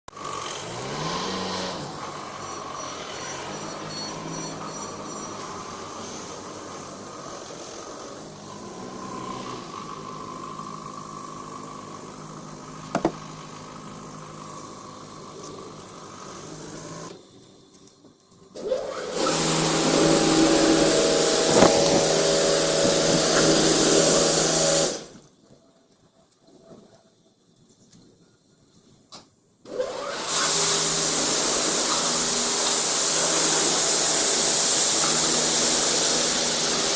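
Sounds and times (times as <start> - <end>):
car wash motor hum: 5.4 - 17.1, 18.6 - 25.2, 29.7 - 36.9
loud steady hiss: 19.1 - 25.4, 28.7 - 36.9.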